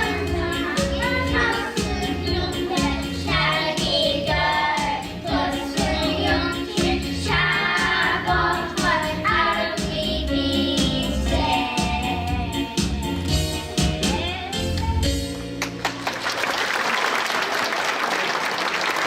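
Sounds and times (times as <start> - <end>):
children singing: 0.0 - 12.9
music backing track with beat: 0.0 - 16.0.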